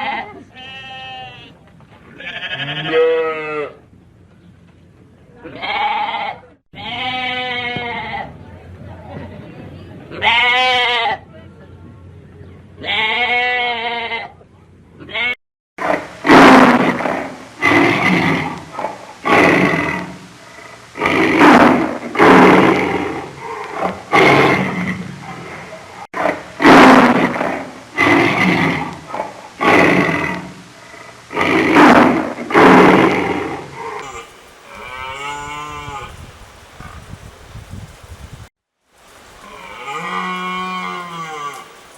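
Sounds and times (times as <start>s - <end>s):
short pitched bleat: 0.0s - 1.5s, 2.2s - 3.8s, 5.5s - 8.2s, 34.0s - 36.2s, 39.4s - 41.7s
large animal roaring: 15.8s - 35.7s
faint pitched animal call: 33.8s - 36.2s, 39.4s - 41.8s.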